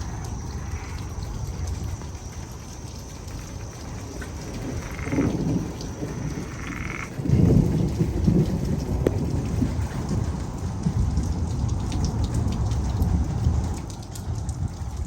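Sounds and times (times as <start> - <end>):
frogs croaking: 0.0 - 11.4
steady rain: 0.0 - 15.0
rolling thunder: 3.4 - 15.0.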